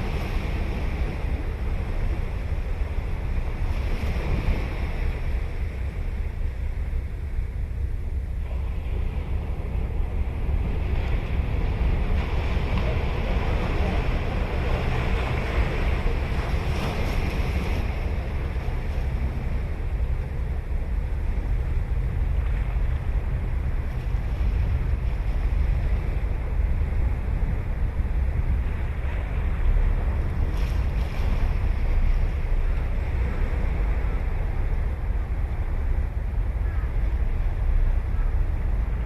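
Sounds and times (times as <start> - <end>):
ocean waves breaking: 0.0 - 39.0
wind rumble on microphone: 0.0 - 39.0.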